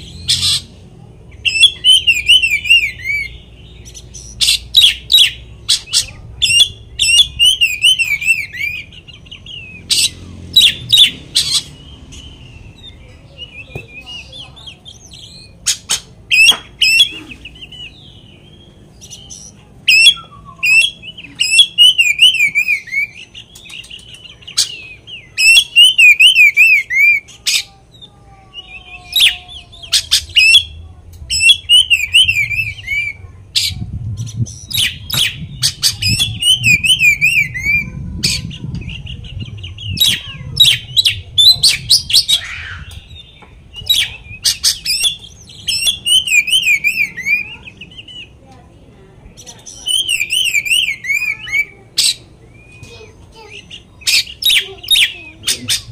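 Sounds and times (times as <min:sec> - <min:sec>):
bird warbling trills and whistles: 0:01.4 - 0:27.7, 0:28.7 - 0:48.4, 0:49.4 - 0:55.9.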